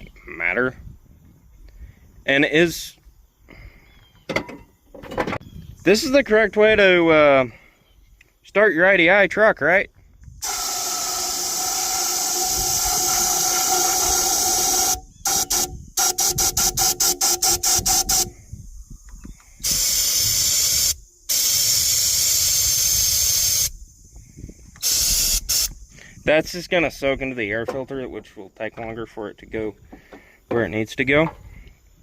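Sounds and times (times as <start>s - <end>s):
aerosol can spraying: 10.4s - 18.3s, 19.6s - 23.7s, 24.8s - 25.8s.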